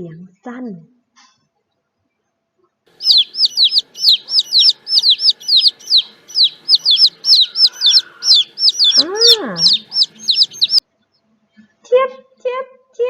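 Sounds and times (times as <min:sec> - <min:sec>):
baby chicks peeping: 0:02.9 - 0:10.8.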